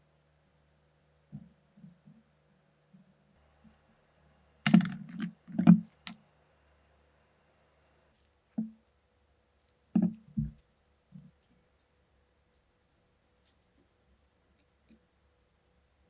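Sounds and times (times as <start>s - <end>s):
rifle parts clicking and knocking: 4.7s - 6.2s.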